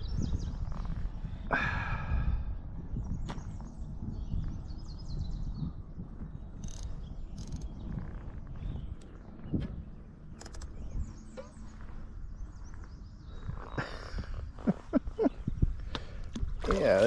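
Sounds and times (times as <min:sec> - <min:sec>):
fishing reel drag ticking: 0:06.6 - 0:07.7.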